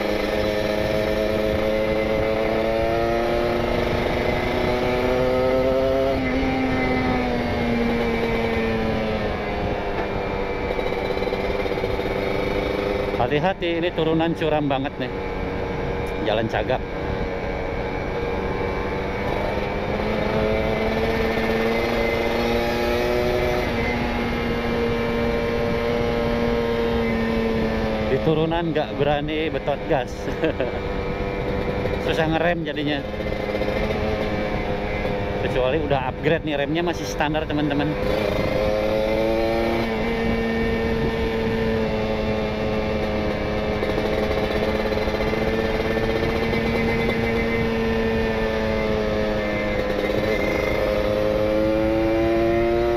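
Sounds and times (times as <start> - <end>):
two-stroke motorcycle engine: 0.0 - 52.9
wind rush: 36.9 - 43.0.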